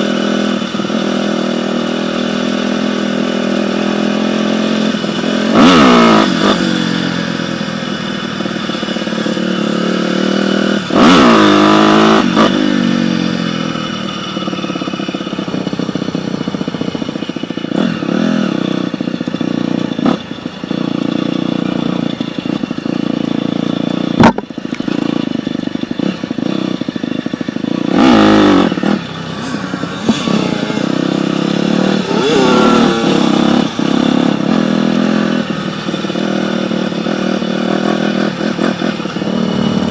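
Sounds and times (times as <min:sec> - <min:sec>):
dirt bike engine revving: 0:00.0 - 0:39.9
sharp knock: 0:24.2 - 0:24.5.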